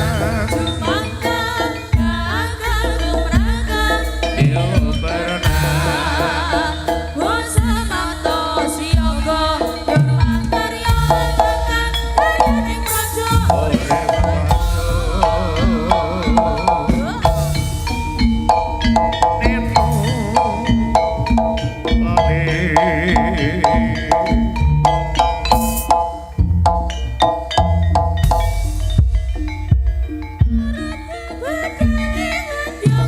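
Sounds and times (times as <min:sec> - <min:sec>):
drums: 0:00.0 - 0:33.0
ornamented melody line: 0:00.0 - 0:33.0
metal gongs: 0:10.3 - 0:32.6.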